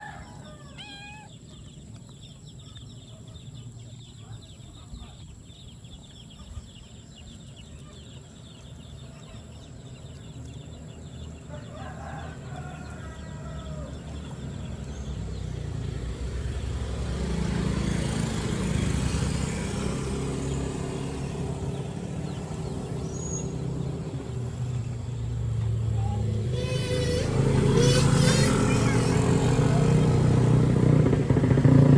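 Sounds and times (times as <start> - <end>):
rooster crow: 0.0 - 1.3, 11.5 - 14.1
chickens calling: 0.0 - 31.9
motorcycle engine approaching: 0.0 - 31.9.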